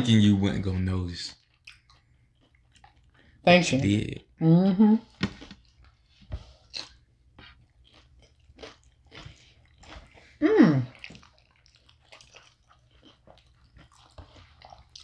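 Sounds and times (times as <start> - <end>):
chewing and biting food: 1.4 - 3.4, 5.4 - 15.0
person humming: 10.4 - 10.9.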